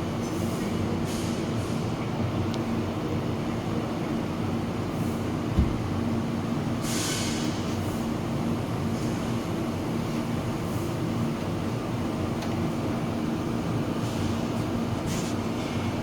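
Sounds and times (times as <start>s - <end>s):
thump: 5.6s - 5.9s.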